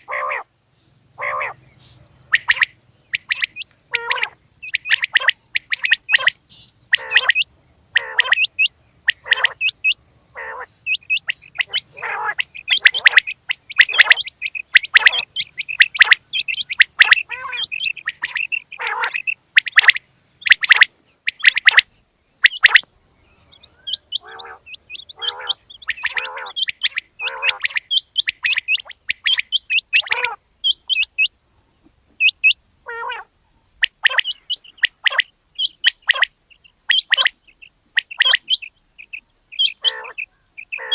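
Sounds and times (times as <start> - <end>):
quail chirping calls: 0.0 - 31.4, 32.1 - 40.9.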